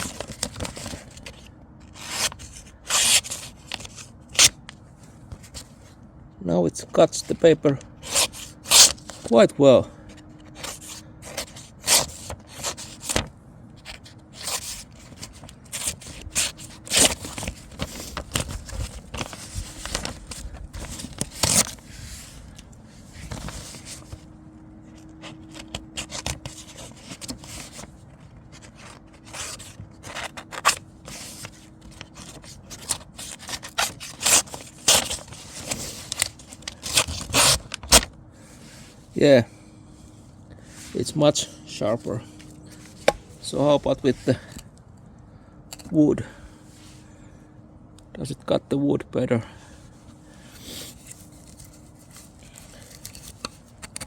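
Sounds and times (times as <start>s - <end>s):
knife slicing through paper: 2.0s - 4.5s, 8.0s - 9.4s, 10.6s - 21.8s, 29.2s - 38.1s.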